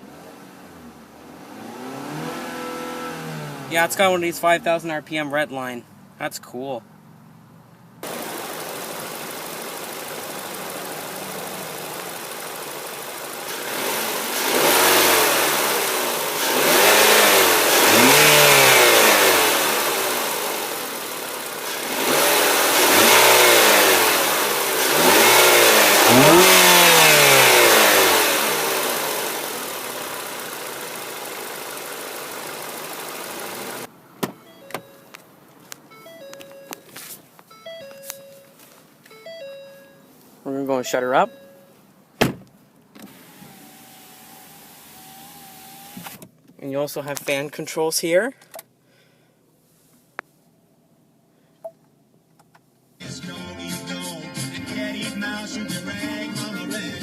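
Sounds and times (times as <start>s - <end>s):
car engine idling and revving: 0.0s - 6.2s, 6.8s - 36.8s, 40.9s - 47.4s.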